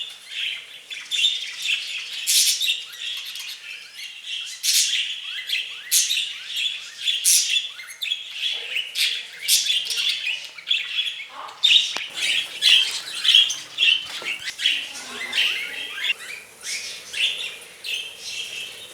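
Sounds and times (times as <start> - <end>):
budgerigars chattering: 12.0 - 18.9.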